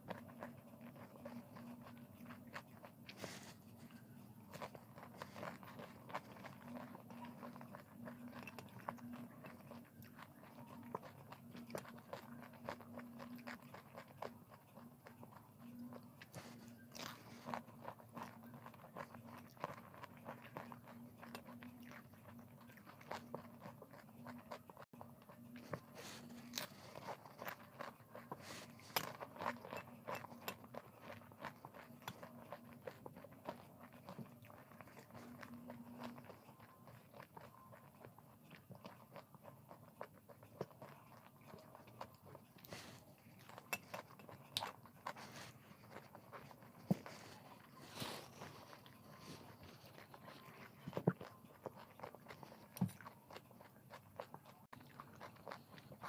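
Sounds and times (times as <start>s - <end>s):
chewing crunchy food: 0.0s - 56.0s.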